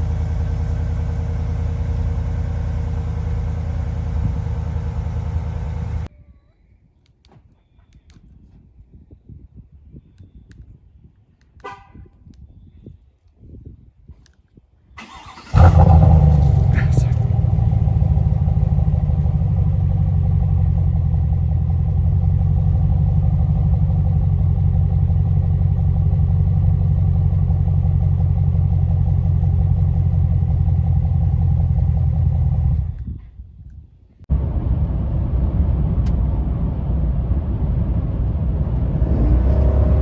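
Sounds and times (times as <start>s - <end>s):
truck engine running: 0.0s - 6.1s, 15.1s - 32.9s, 34.3s - 40.0s.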